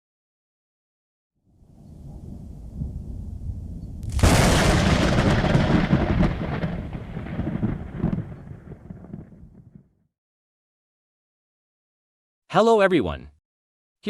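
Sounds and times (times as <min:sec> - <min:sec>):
thunder rumble and crack: 0:01.9 - 0:10.1.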